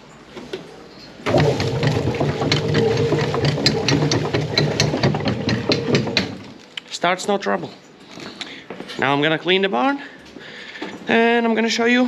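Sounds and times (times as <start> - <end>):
mechanical hum: 0.0 - 12.0
rapid mechanical clicks and clanks: 1.2 - 6.6.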